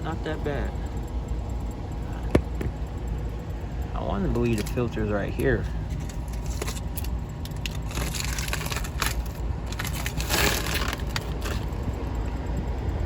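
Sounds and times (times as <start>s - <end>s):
steady low rumble: 0.0s - 13.0s
crunching and scraping on dirt: 5.9s - 11.8s.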